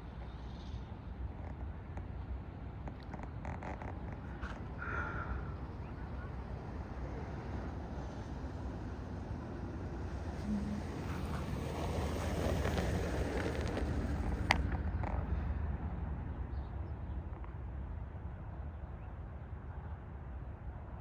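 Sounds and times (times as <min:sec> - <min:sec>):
vehicle passing rumble: 0:03.2 - 0:16.3.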